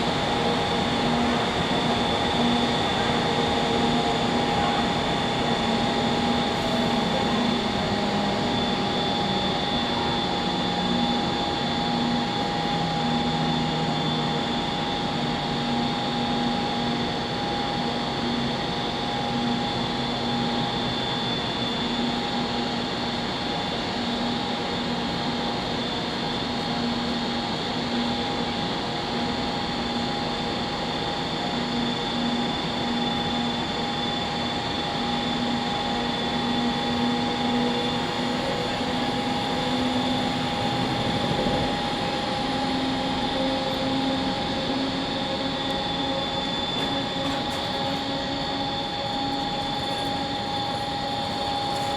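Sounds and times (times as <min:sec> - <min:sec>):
electric train equipment humming: 0:34.5 - 0:51.9.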